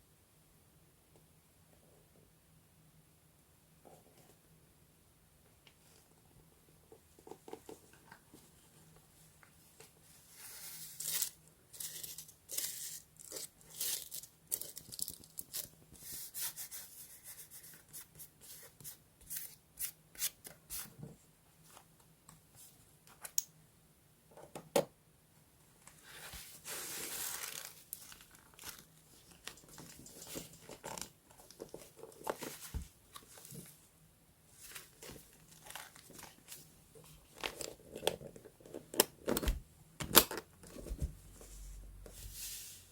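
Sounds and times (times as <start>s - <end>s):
paper tearing and crinkling: 26.7s - 28.9s.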